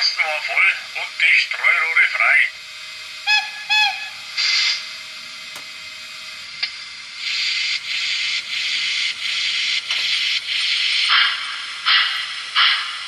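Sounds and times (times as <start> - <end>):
steam locomotive exhaust chuffs: 0.8 - 13.0
steam hiss: 7.1 - 13.0.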